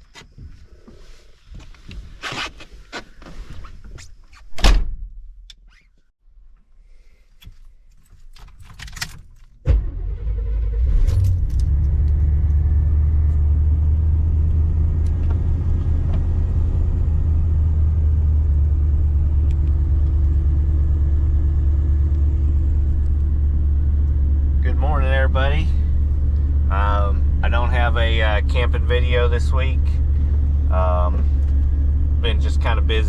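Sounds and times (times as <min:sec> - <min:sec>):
van engine starting and idling: 0:09.6 - 0:33.0.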